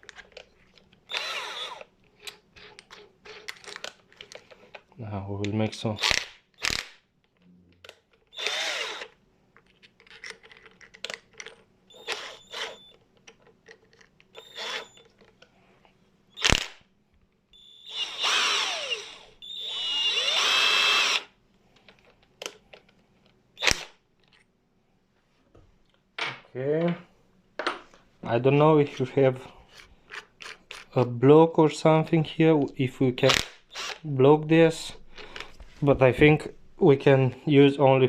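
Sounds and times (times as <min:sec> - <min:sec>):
impact wrench motor whining: 0:01.1 - 0:01.9, 0:08.3 - 0:09.2, 0:11.9 - 0:13.0, 0:14.3 - 0:15.1, 0:16.4 - 0:16.8, 0:17.6 - 0:21.3, 0:23.6 - 0:23.9, 0:33.3 - 0:34.0.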